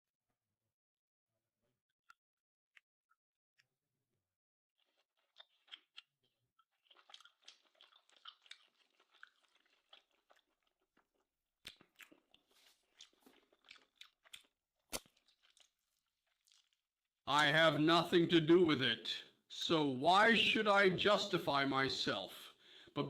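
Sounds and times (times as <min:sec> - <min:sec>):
chewing steak: 0:04.8 - 0:17.0.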